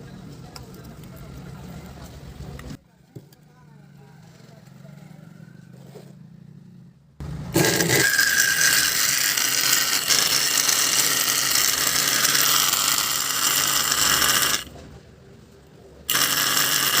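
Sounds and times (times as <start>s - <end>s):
water pump motor running: 7.5s - 14.7s, 16.1s - 17.0s.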